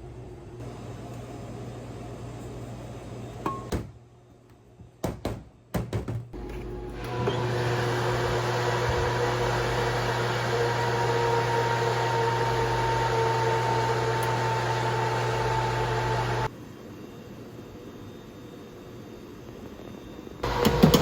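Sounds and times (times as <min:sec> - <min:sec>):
microwave oven humming: 0:06.4 - 0:16.5, 0:20.4 - 0:21.0.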